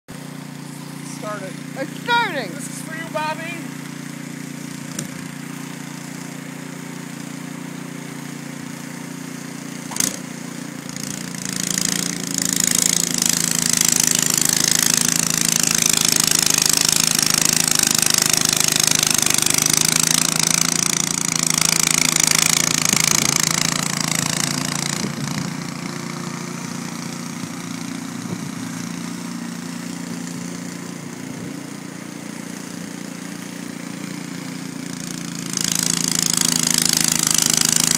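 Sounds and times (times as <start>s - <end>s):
snowblower engine running: 0.1s - 37.9s.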